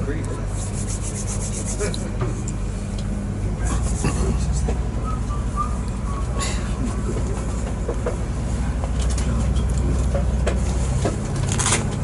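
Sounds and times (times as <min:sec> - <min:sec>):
train rumble inside carriage: 0:00.0 - 0:12.0.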